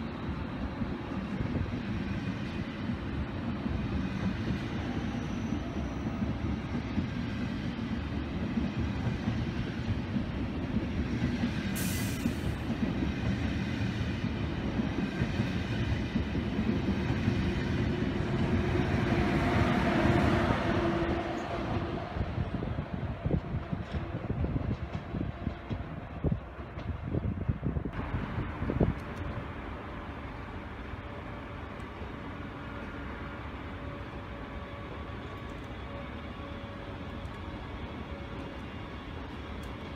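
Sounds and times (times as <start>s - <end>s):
train wheels rumbling on rail: 0.0s - 39.9s
brief hiss: 11.7s - 12.6s.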